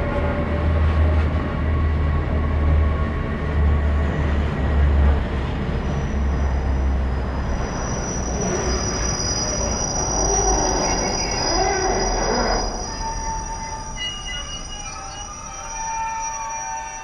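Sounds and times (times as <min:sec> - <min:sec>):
train rumbling past: 0:00.0 - 0:17.0
train wheel squeal: 0:05.4 - 0:17.0.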